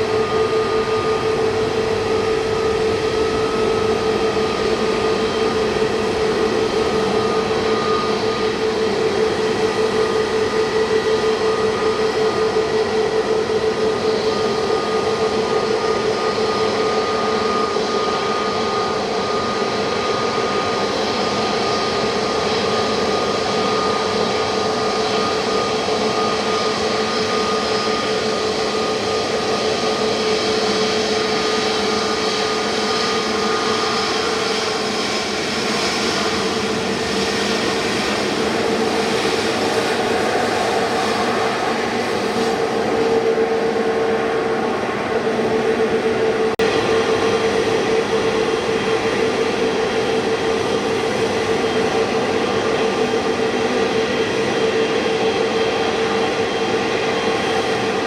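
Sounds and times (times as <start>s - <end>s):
jet engines rushing and whining: 0.0s - 58.0s.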